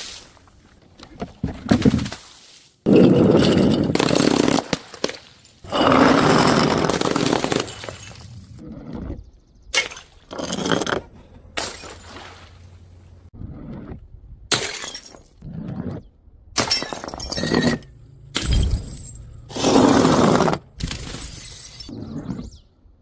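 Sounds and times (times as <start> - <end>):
debris rattling: 2.9 - 8.6, 9.8 - 13.3, 16.6 - 21.9
glass bottles shattering: 2.9 - 8.6, 11.6 - 12.6, 14.5 - 15.4, 16.6 - 21.9.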